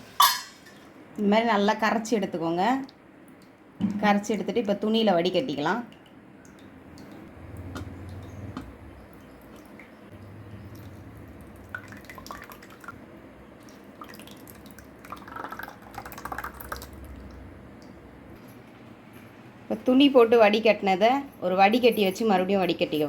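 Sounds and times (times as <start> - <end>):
liquid dripping into a vessel: 5.9 - 18.1.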